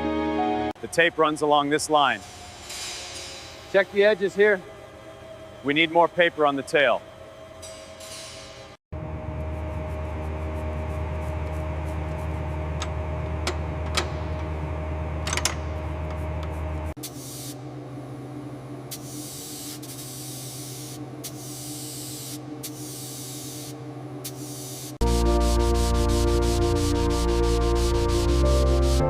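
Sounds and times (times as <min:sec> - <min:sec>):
steady low hum: 0:09.0 - 0:29.0
paint spray gun hissing: 0:17.0 - 0:17.6, 0:18.9 - 0:29.0
loud music: 0:25.0 - 0:29.0.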